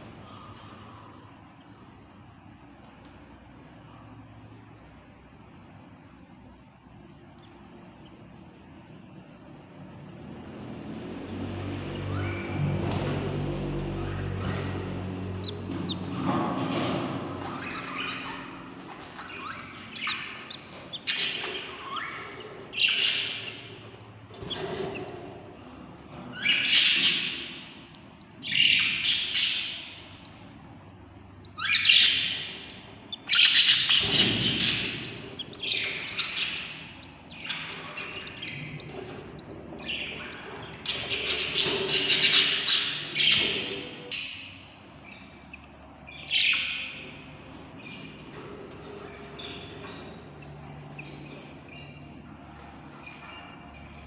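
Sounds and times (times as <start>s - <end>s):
budgie chicks begging calls: 13.6s - 47.4s.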